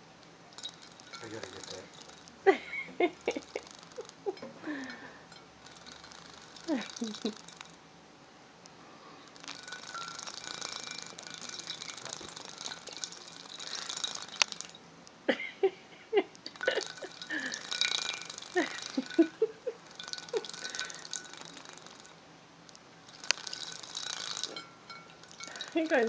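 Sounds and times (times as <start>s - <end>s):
birds splashing in water: 0.0s - 7.8s, 9.2s - 14.8s, 16.5s - 22.2s, 23.0s - 26.0s
water plops and drips: 0.5s - 2.4s, 3.2s - 5.0s, 5.6s - 7.7s, 9.3s - 14.8s, 16.5s - 22.2s, 23.0s - 26.0s.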